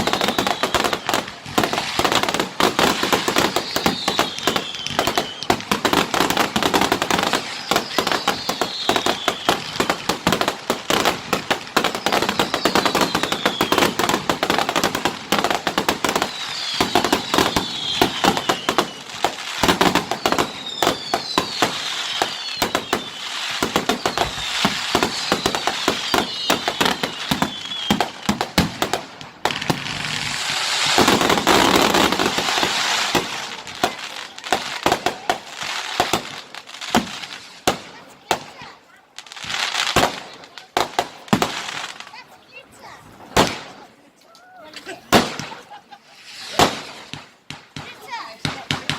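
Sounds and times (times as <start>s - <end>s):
falling firework whistles: 0.0s - 10.0s, 11.8s - 14.4s, 15.9s - 37.7s, 45.1s - 47.3s
fireworks crackling and banging: 0.0s - 48.9s.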